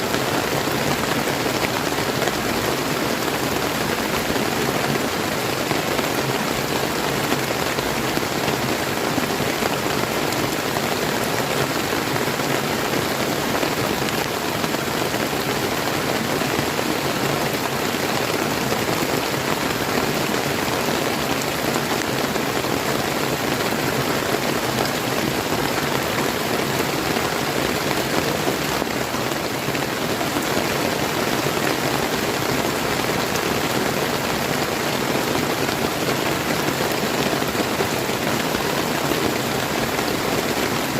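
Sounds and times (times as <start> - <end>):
river water flowing: 0.0 - 40.9
steady rain: 0.0 - 40.9.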